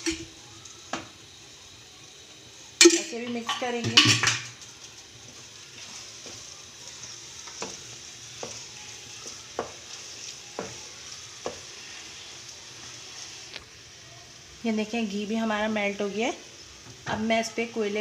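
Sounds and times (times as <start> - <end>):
meat sizzling in a wok: 0.0 - 18.0
spatula scraping a pan: 5.3 - 13.4
spatula knocking on pan: 8.4 - 9.9, 10.5 - 10.8, 11.4 - 11.6.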